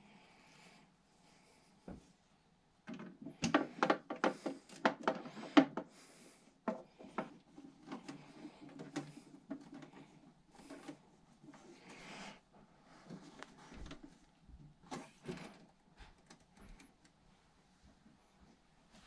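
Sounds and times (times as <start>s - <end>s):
parts clicking and knocking: 2.9s - 5.9s.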